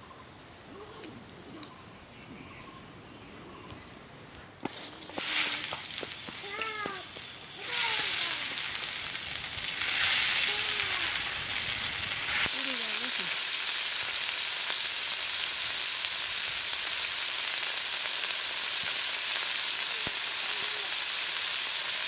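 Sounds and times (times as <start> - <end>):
oil sizzling loudly: 5.0 - 22.0.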